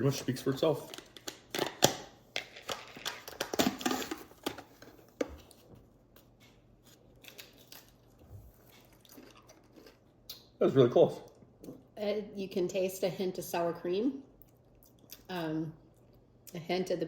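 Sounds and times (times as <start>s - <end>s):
crunching chips being chewed: 7.0s - 10.4s.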